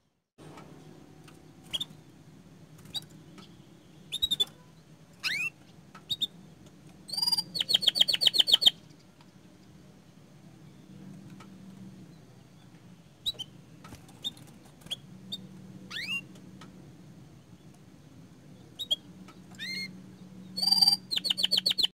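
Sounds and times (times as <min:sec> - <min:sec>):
canary chirping: 0:02.9 - 0:06.4, 0:07.1 - 0:08.9, 0:13.2 - 0:13.6, 0:14.2 - 0:16.3, 0:18.7 - 0:19.0, 0:19.6 - 0:21.9.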